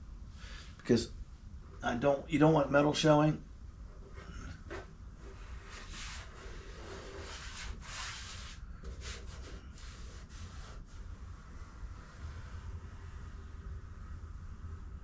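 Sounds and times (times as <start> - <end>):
faint rubbing on steel panel: 3.9 - 14.0.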